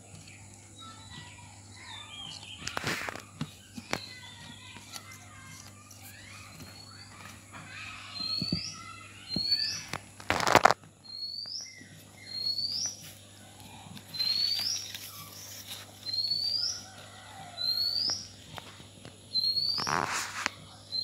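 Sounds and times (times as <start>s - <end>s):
bird chirping: 0.0s - 5.5s, 6.1s - 21.0s
loud rustle: 19.7s - 20.6s.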